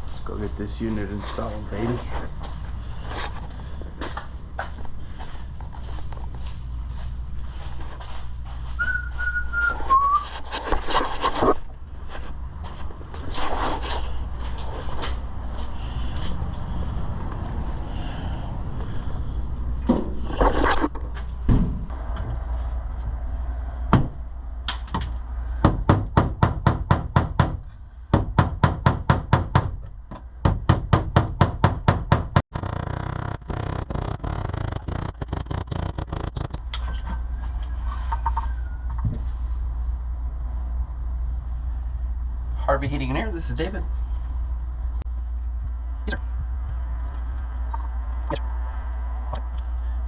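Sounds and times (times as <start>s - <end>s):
low rumble: 11.6s - 20.4s, 21.0s - 25.6s.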